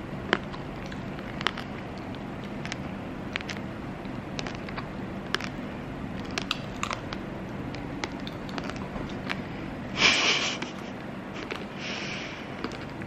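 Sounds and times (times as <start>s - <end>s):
sugar shell crunching: 0.0s - 9.8s, 12.4s - 13.0s
person chewing candied fruit: 0.0s - 9.9s, 10.6s - 13.0s.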